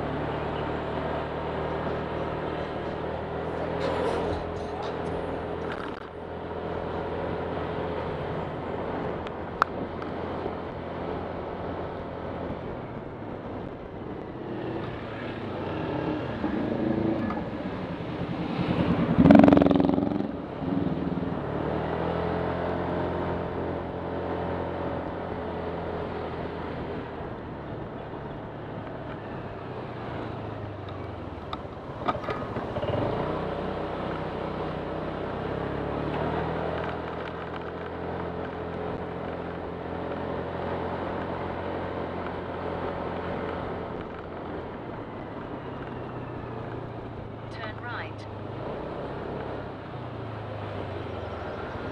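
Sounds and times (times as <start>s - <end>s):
scooter engine running: 30.7s - 34.5s.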